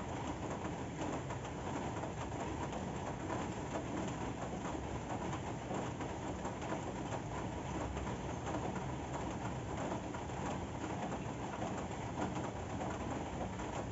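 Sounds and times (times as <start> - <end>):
steady rain falling: 0.0 - 13.9.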